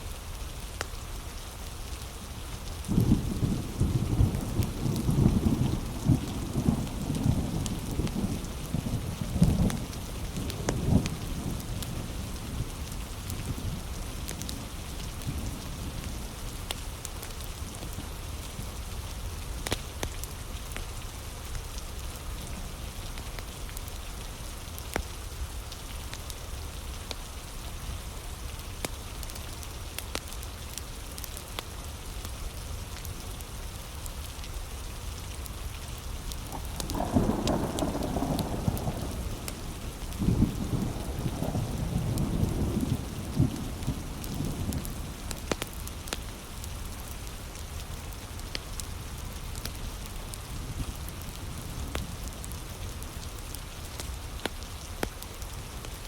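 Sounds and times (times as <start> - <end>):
heavy rain falling: 0.0 - 56.0
thunder rumbling: 2.9 - 11.6, 36.3 - 46.9.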